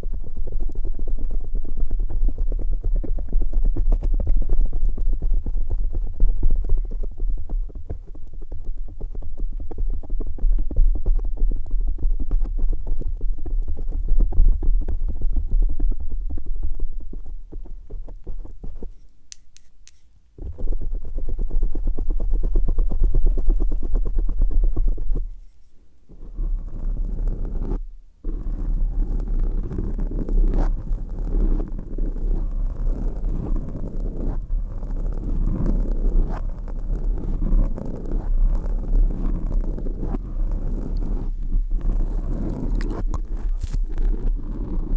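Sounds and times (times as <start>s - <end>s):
crackly rubbing on microphone: 0.0s - 44.9s.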